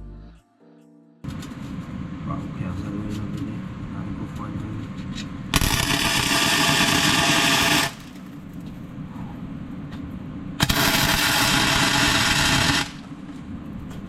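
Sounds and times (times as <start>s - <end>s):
arc welding crackling: 5.6s - 8.6s, 10.6s - 13.9s.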